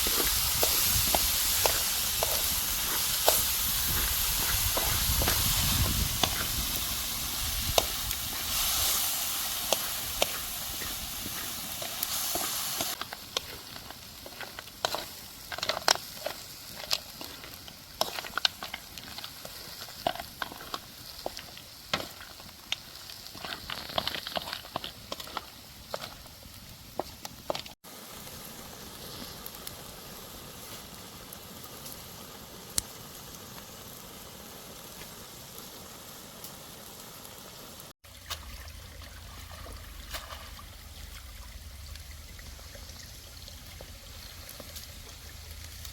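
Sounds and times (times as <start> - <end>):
fire crackling: 0.0 - 45.9
food sizzling over wood fire: 0.0 - 45.9.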